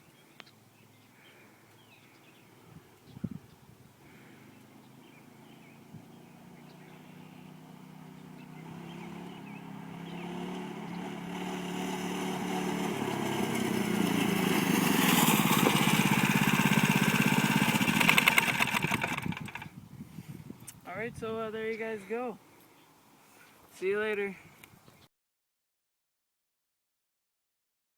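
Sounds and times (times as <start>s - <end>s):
mini bike engine approaching: 4.1s - 19.8s.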